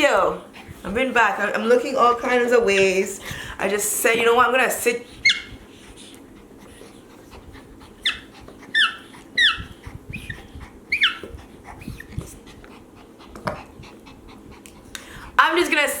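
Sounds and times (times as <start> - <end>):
dog whimpering: 5.2 - 5.6, 7.9 - 12.2.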